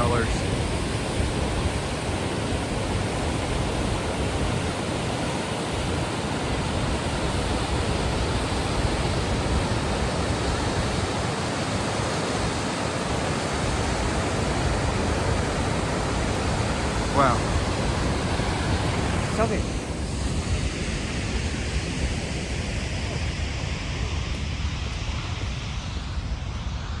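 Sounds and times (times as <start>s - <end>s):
waterfall rushing: 3.8s - 21.2s.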